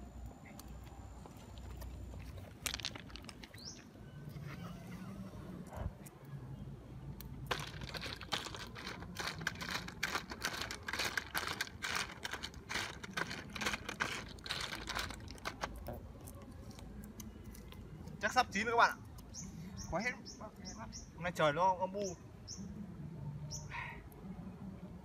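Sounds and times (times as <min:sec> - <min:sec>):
snail shells clicking in tin pot: 0:07.2 - 0:17.4.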